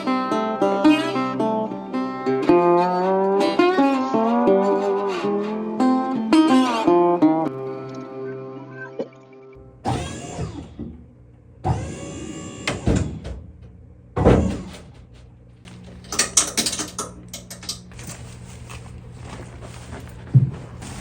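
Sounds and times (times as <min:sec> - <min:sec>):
clicks and knocks of heavy equipment: 0:12.6 - 0:18.8.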